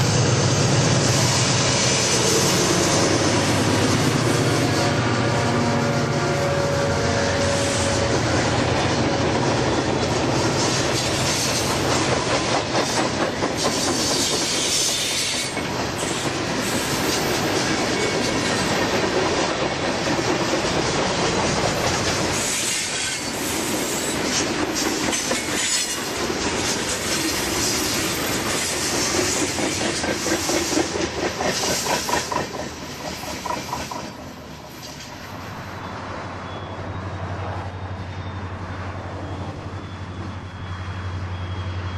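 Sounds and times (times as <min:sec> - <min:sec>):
train wheel squeal: 0:00.0 - 0:41.9
wheels clicking over rail joints: 0:24.1 - 0:35.5.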